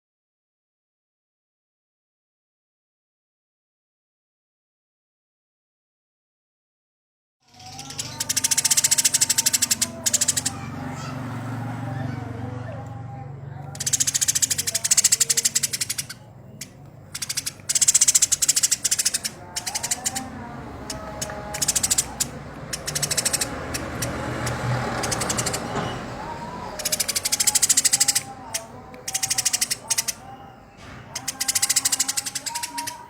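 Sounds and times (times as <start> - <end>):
sparrow chattering harshly: 7.5 - 11.1, 13.7 - 33.0.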